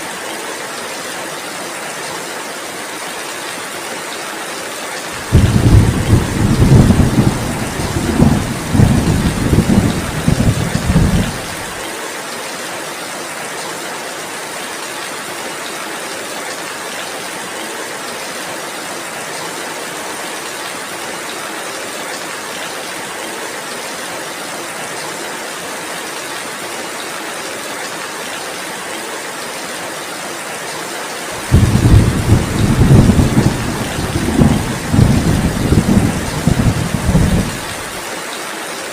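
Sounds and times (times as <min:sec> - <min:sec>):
heavy rain: 0:00.0 - 0:38.9
thunder rumbling: 0:05.2 - 0:11.8, 0:31.4 - 0:38.0.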